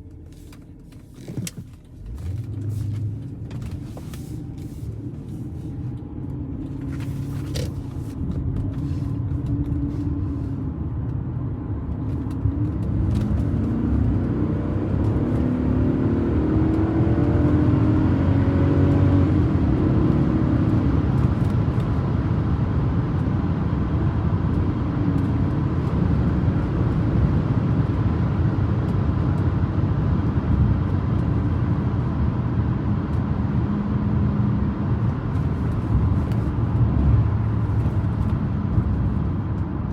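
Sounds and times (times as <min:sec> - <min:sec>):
tyre and road rumble: 0:00.0 - 0:19.2, 0:29.4 - 0:39.9
car engine pulling away: 0:00.2 - 0:21.7.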